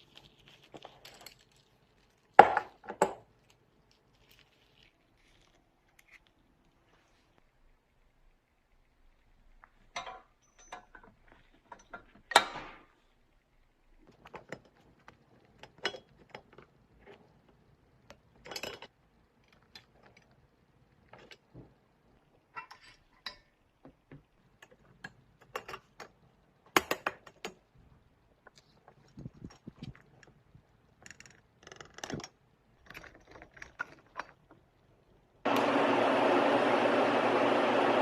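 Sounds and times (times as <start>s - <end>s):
metal parts clicking and clinking: 9.9s - 12.4s, 18.4s - 20.3s, 31.0s - 34.6s.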